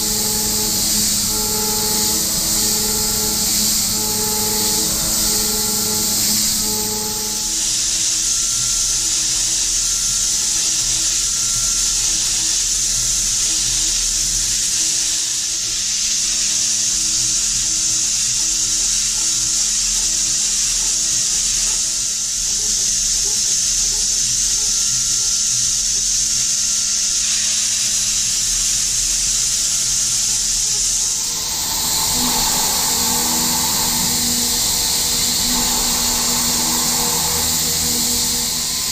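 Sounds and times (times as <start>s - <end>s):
milling machine cutting hiss: 0.0s - 10.3s, 28.9s - 38.9s.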